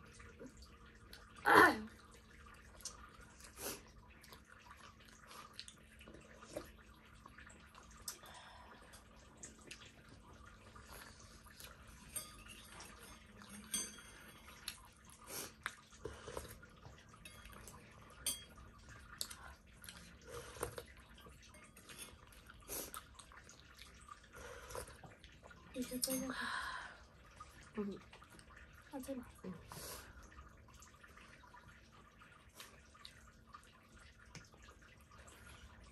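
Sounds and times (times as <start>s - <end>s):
chewing and mouth noises: 2.0s - 8.3s, 8.9s - 13.5s, 14.5s - 25.8s
utensils clinking on dishes: 11.8s - 14.7s, 17.1s - 18.7s, 25.7s - 26.4s.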